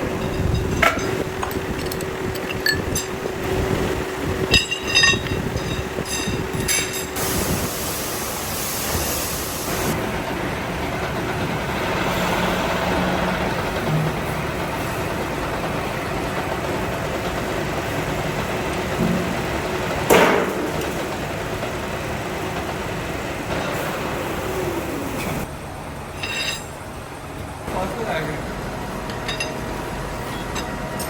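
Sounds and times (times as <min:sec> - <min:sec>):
metalworking machinery running: 0:00.0 - 0:31.0
hiss: 0:07.1 - 0:10.0.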